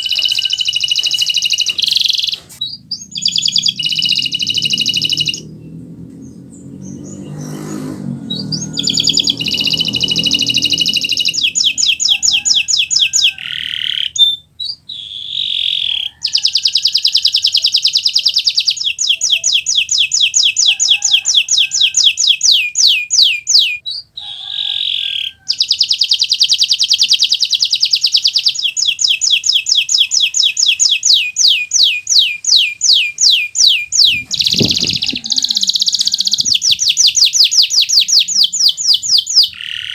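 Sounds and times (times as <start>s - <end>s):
canary singing trills: 0.0s - 39.9s
faint low rumble: 1.9s - 11.7s.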